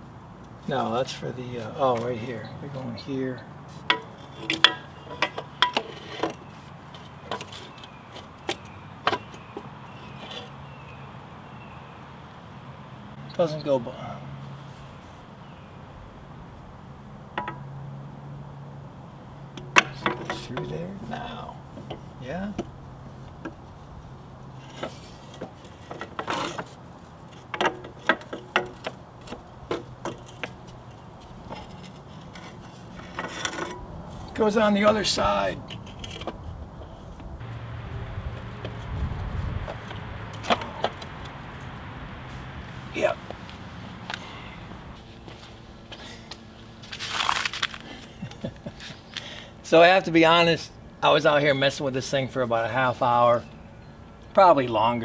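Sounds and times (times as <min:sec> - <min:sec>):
metal pipe clanking: 0:03.9 - 0:06.4.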